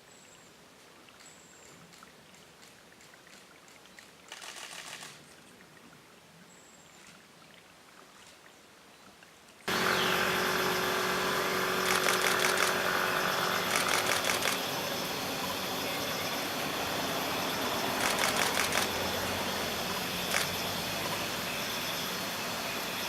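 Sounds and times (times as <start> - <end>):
camera shutter clicking rapidly: 4.3 - 5.2, 11.8 - 12.9, 13.6 - 14.6, 18.0 - 19.0, 20.3 - 20.6
steady background hum: 9.7 - 23.0.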